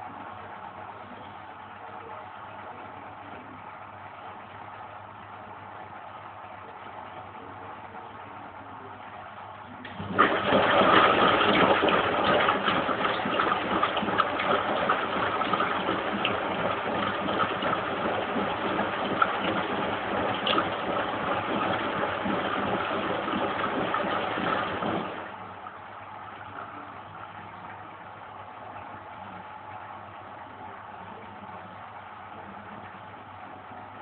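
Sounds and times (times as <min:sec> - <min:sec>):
washing machine hum: 0:00.0 - 0:34.0
water rushing and splashing: 0:10.0 - 0:25.4.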